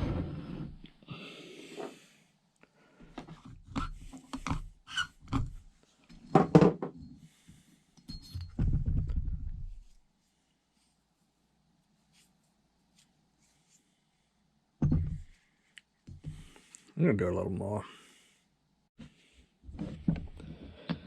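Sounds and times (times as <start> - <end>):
valve lapping clicks and scraping: 3.5 - 5.6.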